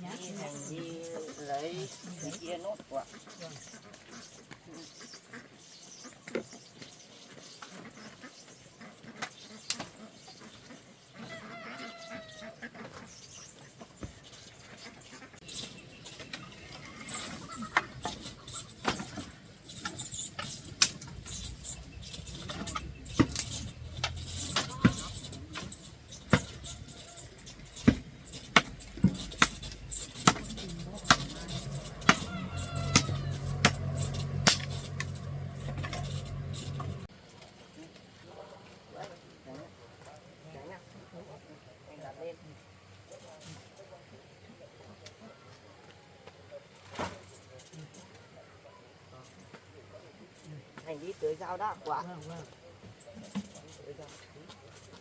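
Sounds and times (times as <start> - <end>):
chickens calling: 0.0 - 37.1.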